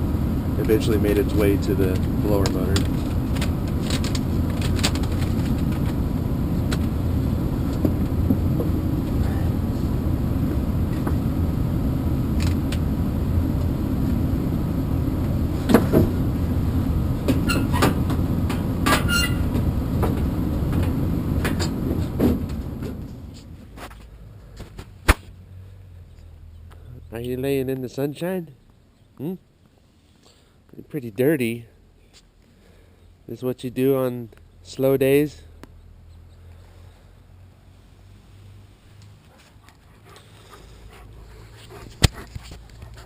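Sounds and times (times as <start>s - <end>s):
machinery rumbling: 0.0s - 28.1s.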